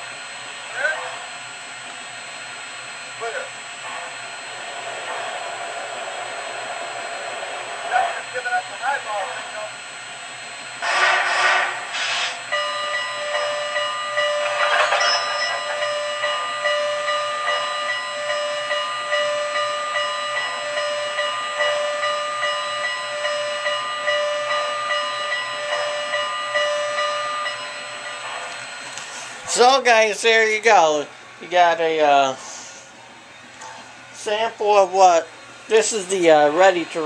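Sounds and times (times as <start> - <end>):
steam locomotive chuffing: 0.0 - 33.0
steady whine of held tones: 0.0 - 37.0
steam hiss: 4.0 - 9.6, 10.8 - 12.5.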